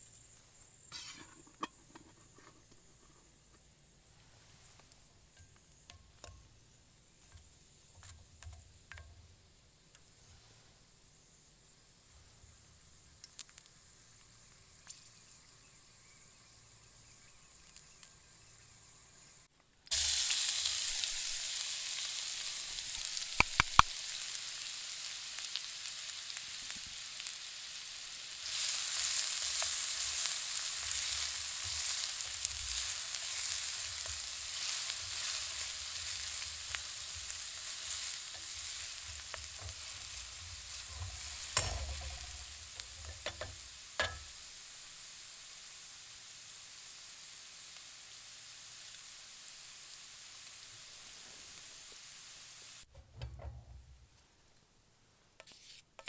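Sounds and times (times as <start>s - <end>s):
food sizzling in a pan: 0.0s - 52.9s
utensil clicking against pan: 23.2s - 23.9s, 29.4s - 44.4s.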